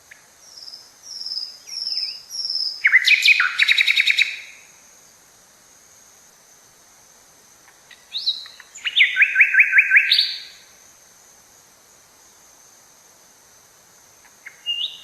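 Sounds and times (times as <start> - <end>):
bird whistled notes: 8.2 - 10.5.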